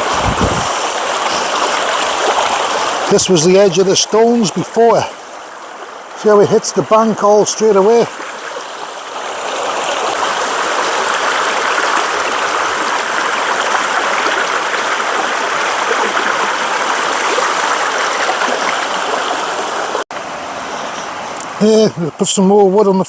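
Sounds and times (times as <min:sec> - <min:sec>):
river rushing: 0:00.0 - 0:22.3.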